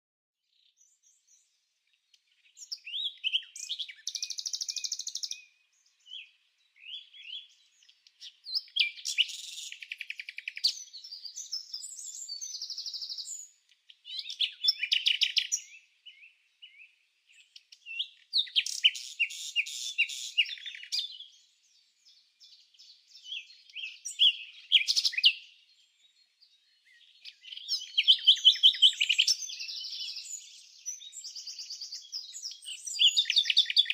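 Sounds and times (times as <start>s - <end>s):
bird chirps and trills: 2.3s - 33.9s.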